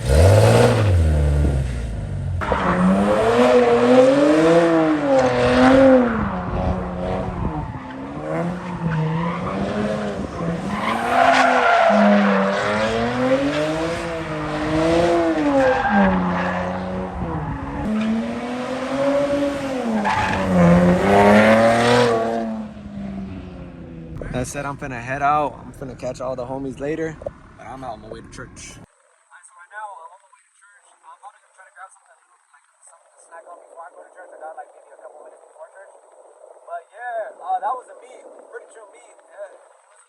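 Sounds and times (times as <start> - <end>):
car engine revving: 0.0 - 28.8
tyres squealing: 7.8 - 14.4.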